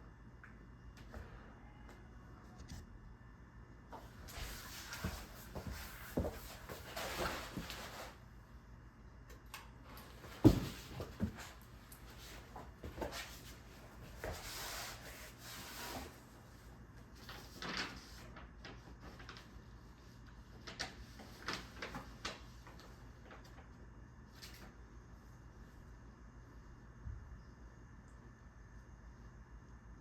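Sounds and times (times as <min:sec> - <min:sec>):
ceiling fan humming: 0:00.0 - 0:30.0.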